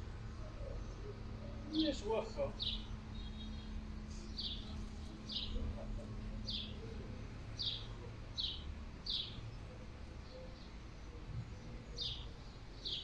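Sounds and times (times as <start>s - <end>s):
songbird chirping: 0.1s - 13.0s.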